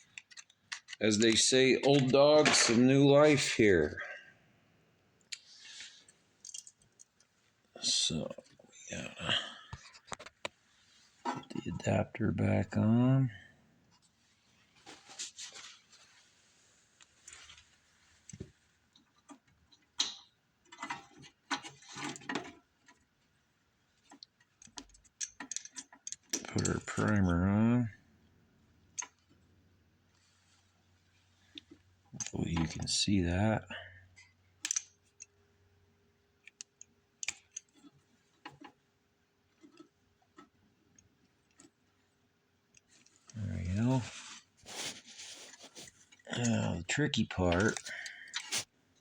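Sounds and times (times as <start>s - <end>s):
small parts clicking and tapping: 0.0s - 2.9s, 5.2s - 7.3s, 18.2s - 27.3s, 28.9s - 29.4s, 34.1s - 35.4s, 36.3s - 43.4s, 47.5s - 48.7s
hand tools clicking and tapping: 24.2s - 27.2s.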